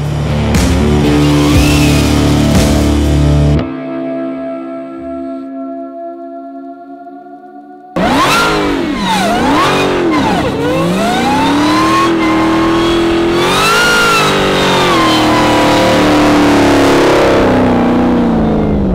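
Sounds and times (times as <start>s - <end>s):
car engine revving hard: 8.0s - 18.9s.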